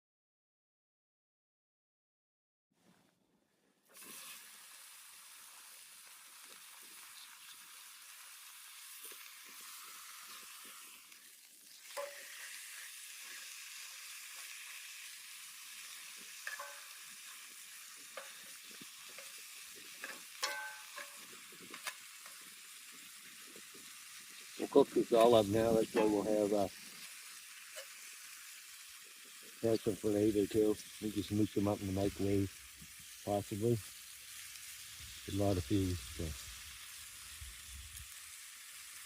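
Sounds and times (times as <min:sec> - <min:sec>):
food sizzling in a pan: 0:03.9 - 0:39.0
utensil tapping a pan: 0:12.0 - 0:12.4, 0:16.4 - 0:17.3, 0:18.1 - 0:19.4, 0:20.0 - 0:22.4, 0:25.8 - 0:26.3.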